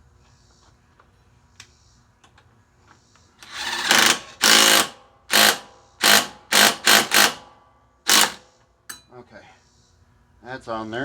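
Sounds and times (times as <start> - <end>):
power tool driving fastener: 3.4 - 7.5, 8.1 - 8.4.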